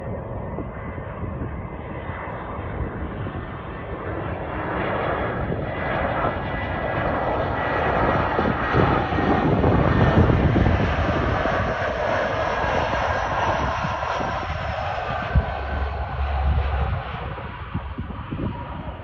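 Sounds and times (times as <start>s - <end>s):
faint high engine whine: 0.0s - 19.0s
jet engines running: 0.0s - 19.0s.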